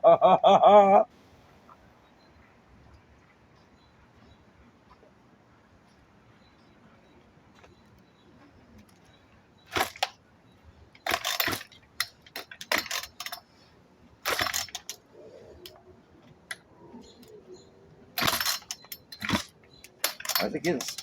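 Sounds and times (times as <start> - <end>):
chainsaw starter cord pulls: 9.7 - 10.2, 11.0 - 13.5, 14.2 - 15.0, 18.2 - 21.0
starter clicks: 9.7 - 10.2, 11.0 - 13.5, 14.2 - 17.4, 18.2 - 21.0.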